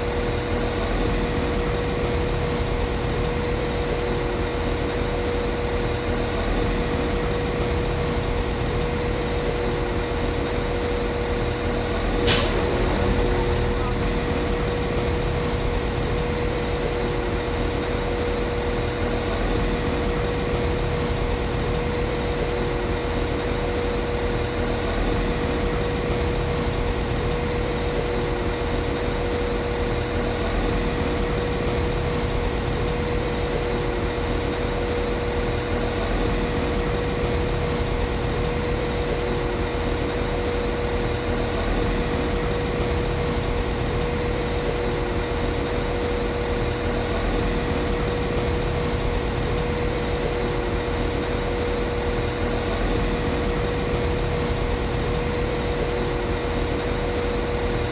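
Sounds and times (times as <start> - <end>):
mid-pitched whine: 0.0 - 57.9.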